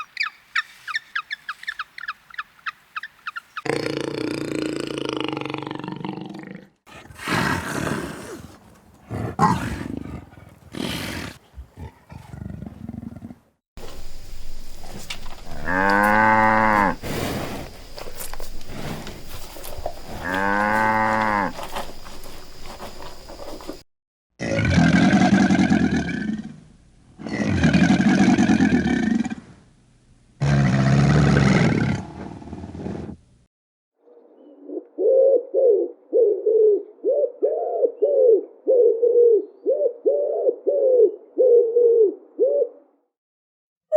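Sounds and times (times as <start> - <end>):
large animal long pitched calls: 14.8 - 23.0
large animal rough calls: 14.8 - 23.8.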